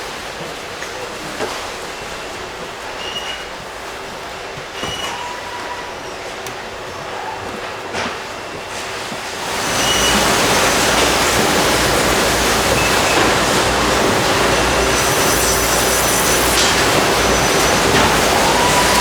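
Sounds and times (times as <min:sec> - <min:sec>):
factory machinery rushing: 0:09.4 - 0:19.0.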